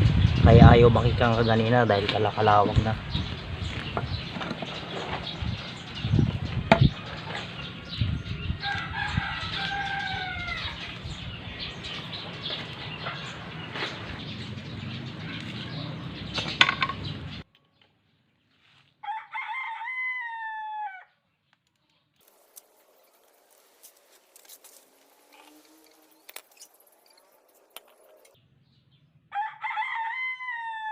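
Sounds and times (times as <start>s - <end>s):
rooster crowing: 8.4s - 10.9s, 19.0s - 21.2s, 29.3s - 30.9s
clicks and knocks: 16.3s - 17.1s.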